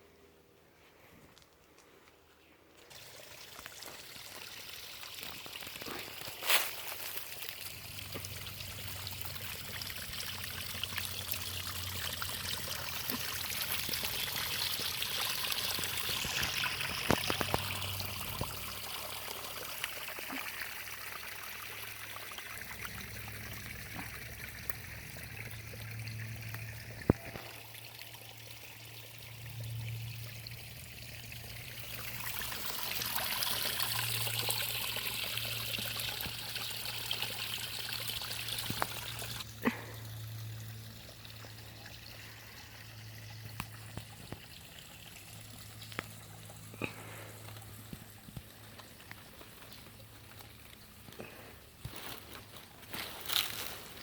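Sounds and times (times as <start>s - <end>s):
creek water trickling: 2.7s - 54.0s.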